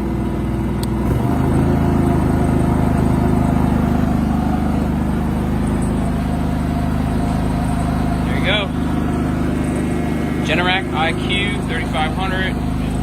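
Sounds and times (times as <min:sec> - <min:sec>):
blower fan: 0:00.0 - 0:13.0
generator engine running: 0:00.0 - 0:13.0.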